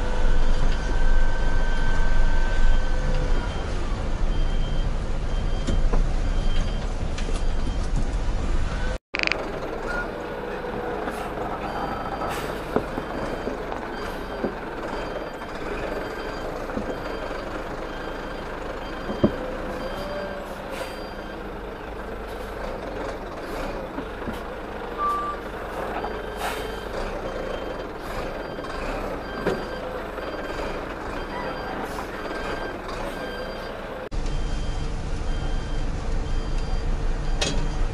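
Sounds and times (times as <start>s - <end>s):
truck reversing alarm beeping: 0.0s - 6.8s, 8.8s - 37.9s
truck engine running: 7.6s - 37.9s.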